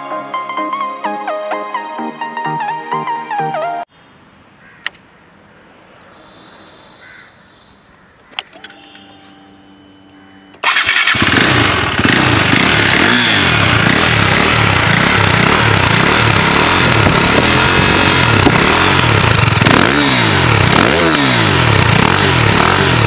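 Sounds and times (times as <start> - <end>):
starter click: 8.2 - 9.3
motorcycle engine idling: 10.6 - 23.0.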